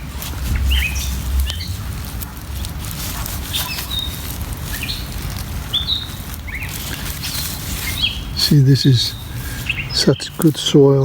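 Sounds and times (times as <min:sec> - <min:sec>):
low rumble: 0:00.0 - 0:05.7
light rustling: 0:00.0 - 0:11.0
small birds chirping: 0:00.0 - 0:11.0.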